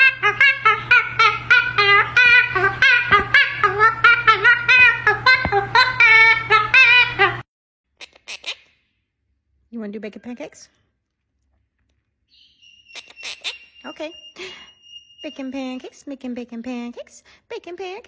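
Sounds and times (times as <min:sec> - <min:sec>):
parrot vocalising high notes: 0:00.0 - 0:07.4, 0:12.3 - 0:16.0
steady low hum: 0:00.0 - 0:07.4.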